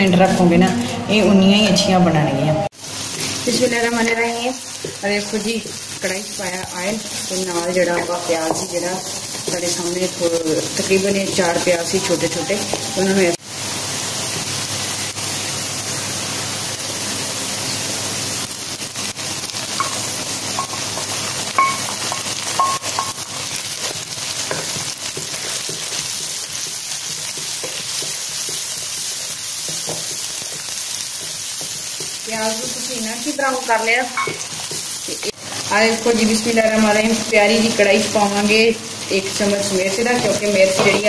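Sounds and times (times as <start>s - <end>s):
onions sizzling in oil: 2.7s - 41.0s
wooden spatula stirring: 23.7s - 32.9s.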